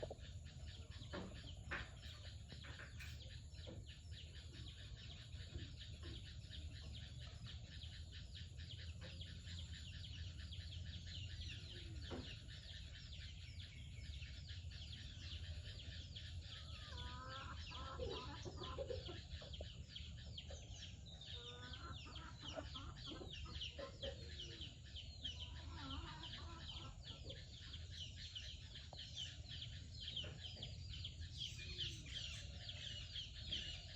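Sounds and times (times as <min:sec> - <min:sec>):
small birds chirping: 0:00.0 - 0:33.9
hens clucking: 0:15.8 - 0:33.9.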